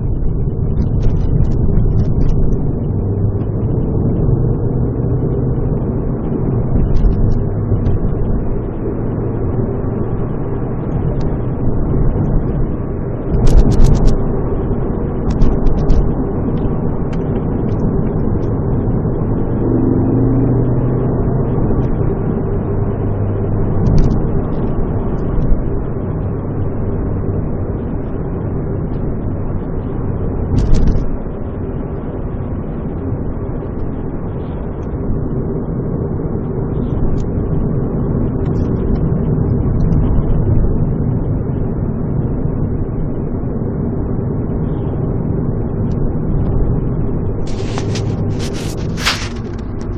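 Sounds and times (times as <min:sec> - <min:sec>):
car engine and exhaust droning: 0:00.0 - 0:49.9.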